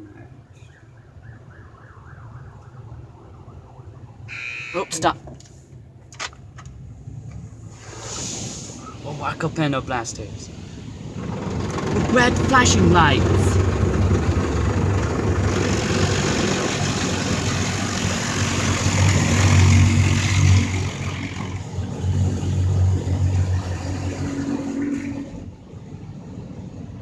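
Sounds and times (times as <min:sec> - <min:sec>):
high-pressure water spray hissing: 0:07.7 - 0:09.8, 0:15.0 - 0:21.6.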